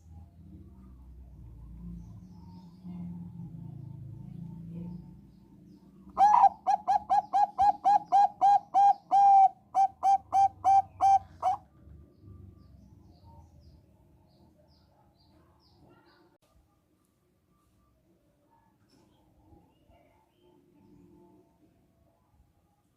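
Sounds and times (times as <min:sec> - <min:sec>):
dove cooing: 0:06.2 - 0:11.6.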